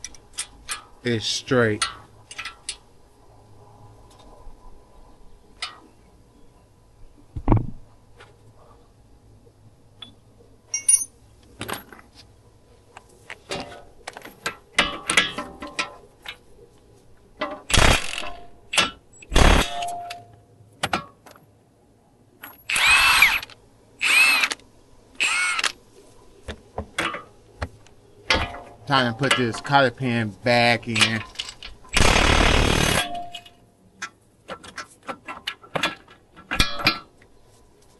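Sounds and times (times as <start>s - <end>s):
metal tools clanking: 10.7s - 12.0s, 30.8s - 31.8s
power tool bursts: 17.7s - 18.2s, 19.3s - 19.8s, 31.9s - 33.1s.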